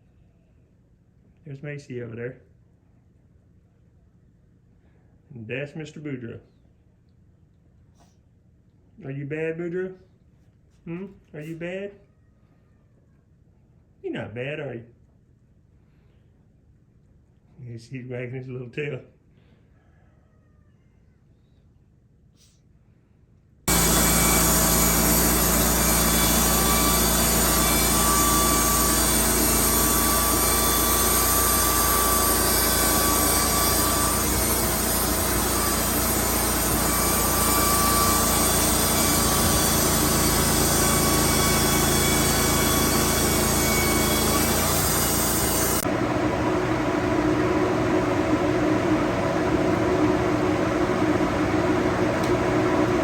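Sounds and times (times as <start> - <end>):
band sawmill cutting log: 23.7 - 53.0
soft steady whir: 23.7 - 53.0.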